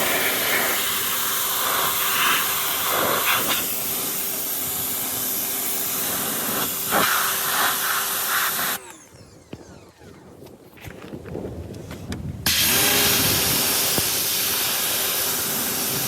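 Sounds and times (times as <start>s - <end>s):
pressure washer water spray: 0.0s - 8.8s, 12.5s - 16.0s
pressure washer hum: 0.0s - 10.6s, 12.4s - 16.0s.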